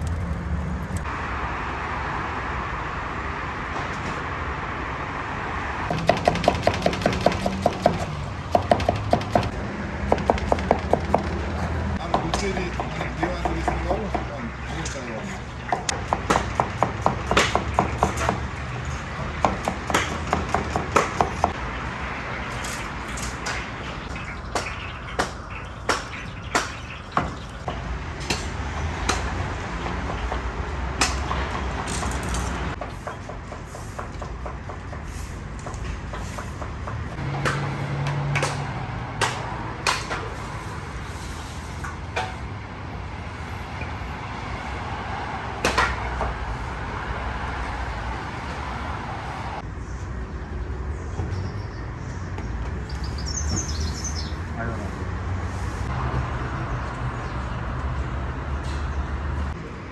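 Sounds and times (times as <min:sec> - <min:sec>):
sharp knocks and clanks: 0:05.8 - 0:21.7, 0:22.4 - 0:40.5, 0:41.8 - 0:42.5, 0:45.6 - 0:46.5.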